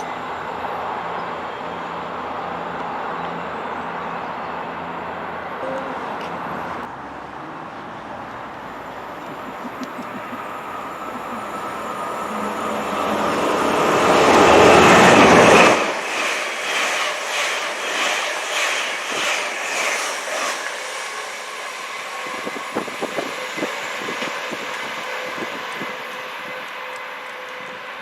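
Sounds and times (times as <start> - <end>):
train passing at speed: 0.0 - 28.0
train wheels clattering: 9.3 - 27.6.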